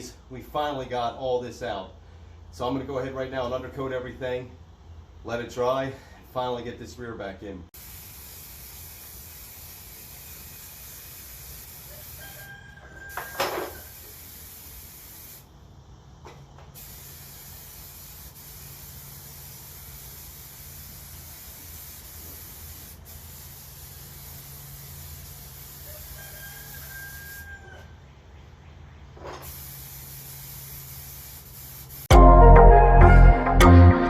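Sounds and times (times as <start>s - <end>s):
aerosol spray hissing: 7.8s - 12.5s, 13.1s - 15.5s, 16.8s - 27.4s, 29.4s - 32.1s.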